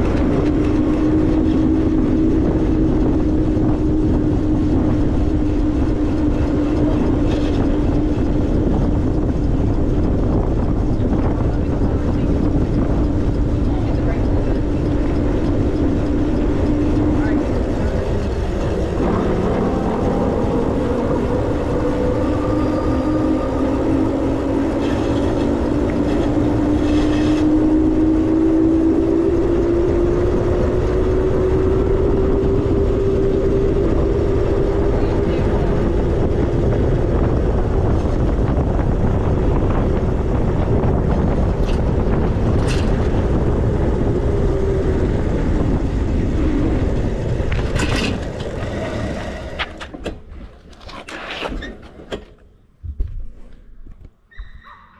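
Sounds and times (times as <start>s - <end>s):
wind rushing over microphone: 0.0s - 50.4s
electric motor whine: 13.8s - 39.8s.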